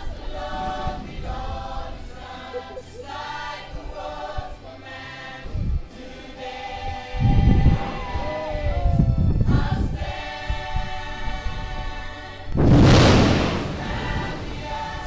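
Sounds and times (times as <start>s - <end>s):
choir singing: 0.0s - 15.0s
loud low rumble: 12.6s - 14.8s.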